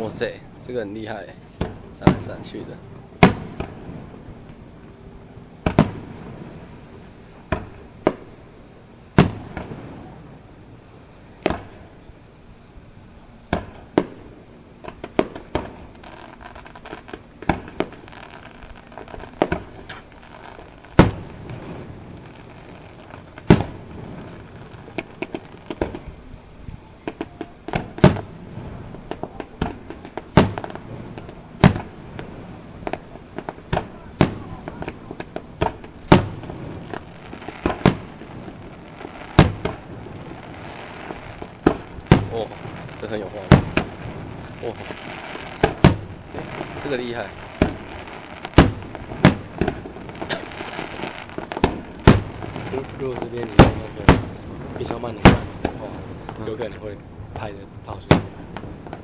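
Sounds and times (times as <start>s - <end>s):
firework crackles: 0.0s - 59.0s
firework shells bursting: 5.6s - 6.6s, 13.5s - 26.3s, 27.0s - 59.0s.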